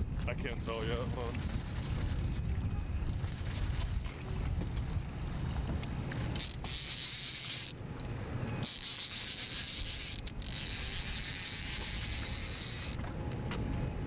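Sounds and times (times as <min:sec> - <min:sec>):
fishing reel whirring: 0:00.7 - 0:04.4, 0:06.3 - 0:07.8, 0:08.6 - 0:13.1.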